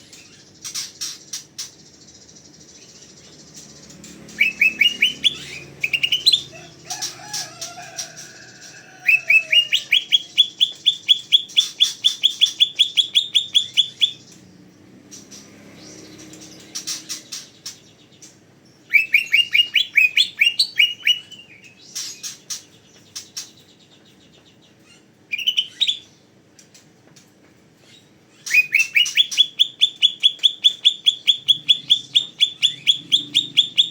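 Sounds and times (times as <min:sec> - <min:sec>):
bird singing rising notes: 0:02.3 - 0:07.2, 0:08.9 - 0:18.1, 0:18.8 - 0:21.6, 0:28.4 - 0:33.9.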